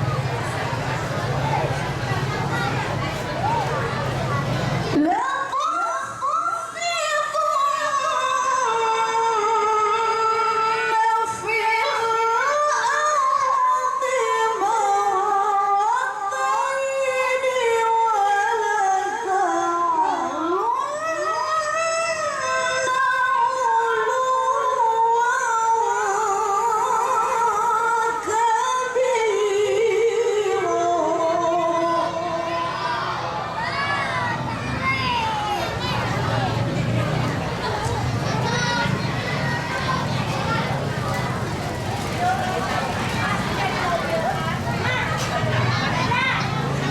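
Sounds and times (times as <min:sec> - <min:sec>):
woman reciting melodically: 0:04.9 - 0:33.8.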